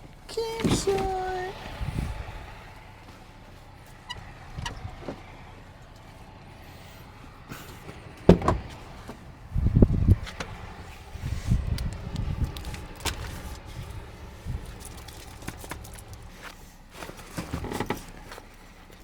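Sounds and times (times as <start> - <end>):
knocks and thuds: 8.2 - 9.2
low rumble: 8.2 - 16.4.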